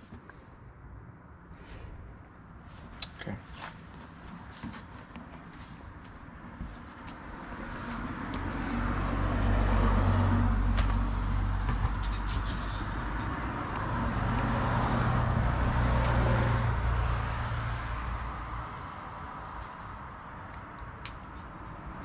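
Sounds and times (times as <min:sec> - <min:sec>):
vehicles driving past: 0:04.5 - 0:22.0.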